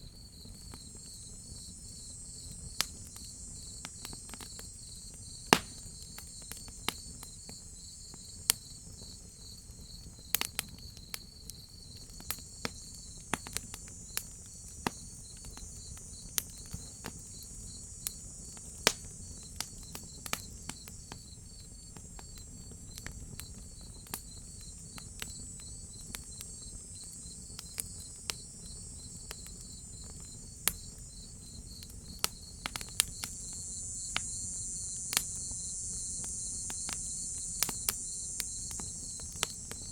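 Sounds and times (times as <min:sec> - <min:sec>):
crickets chirping: 0:00.0 - 0:39.9
wood fire crackling: 0:00.4 - 0:39.9
high insect buzz: 0:10.2 - 0:39.9.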